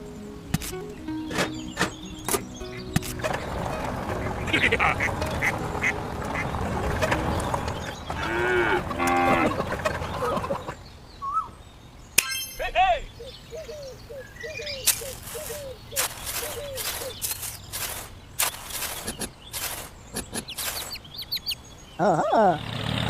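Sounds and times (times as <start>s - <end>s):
animal calls: 4.2s - 11.5s, 13.0s - 22.7s.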